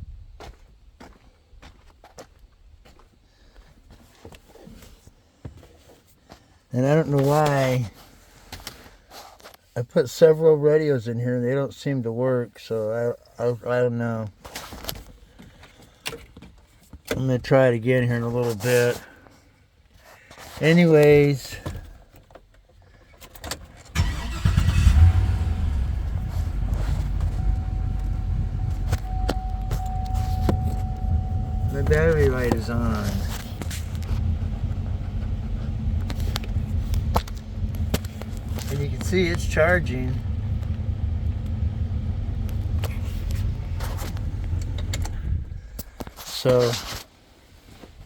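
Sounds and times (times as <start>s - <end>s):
pickup engine starting and idling: 23.8s - 46.1s.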